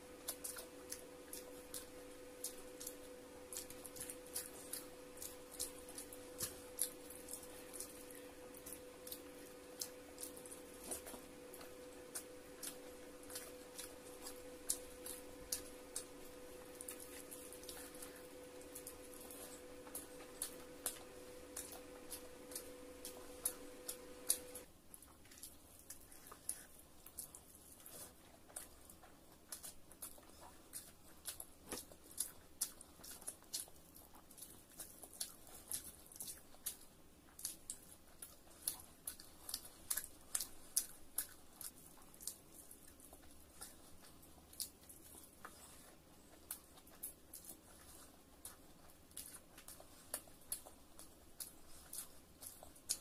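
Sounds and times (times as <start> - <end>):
steady background hum: 0.0 - 53.0
wet chewing and mouth smacks: 0.0 - 53.0.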